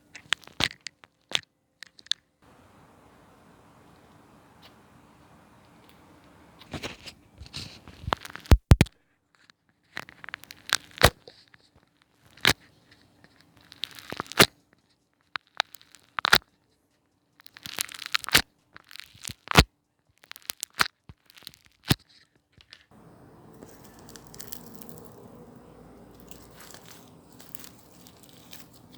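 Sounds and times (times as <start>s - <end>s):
slime crackling and popping: 10.1s - 11.2s, 13.6s - 14.5s, 15.4s - 16.4s, 17.4s - 22.0s, 23.5s - 25.4s, 26.0s - 28.9s.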